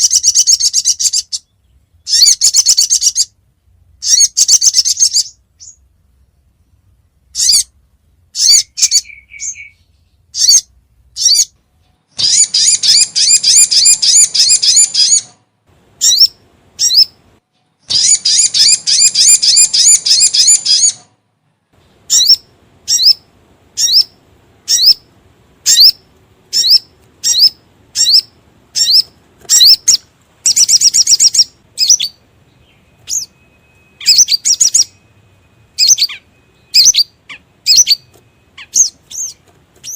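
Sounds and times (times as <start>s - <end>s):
bird calling with chip notes: 0.0s - 3.4s, 4.0s - 5.8s, 7.3s - 15.4s, 16.0s - 17.2s, 17.8s - 21.1s, 22.0s - 39.9s
rapid bird trills: 0.0s - 3.4s, 4.0s - 5.8s, 7.3s - 15.4s, 16.0s - 17.2s, 17.9s - 21.1s, 22.0s - 39.9s.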